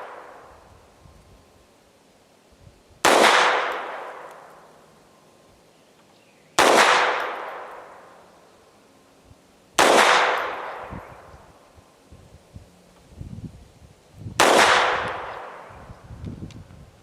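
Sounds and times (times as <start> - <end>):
pistol shots echoing: 3.0 - 4.6, 6.6 - 8.3, 9.8 - 11.2, 14.4 - 15.7.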